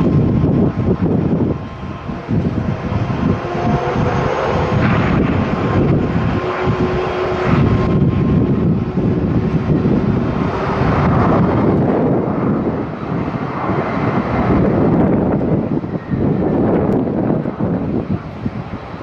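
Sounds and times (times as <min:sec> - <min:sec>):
jet engines roaring: 0:00.0 - 0:19.0
wind buffeting microphone: 0:00.0 - 0:19.0.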